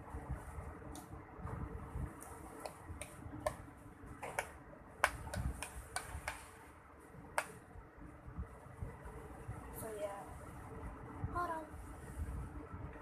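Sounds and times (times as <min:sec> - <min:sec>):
sharp clicks and taps: 0:04.2 - 0:06.4.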